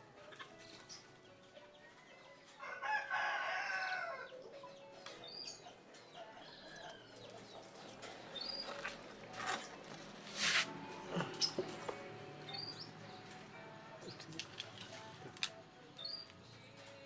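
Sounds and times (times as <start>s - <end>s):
rooster crowing: 2.6s - 4.3s.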